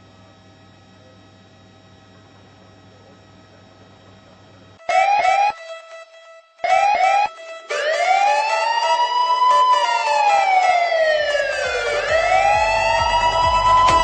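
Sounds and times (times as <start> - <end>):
emergency vehicle siren wailing: 4.8 - 5.8, 6.6 - 14.0
low vehicle rumble: 11.2 - 14.0.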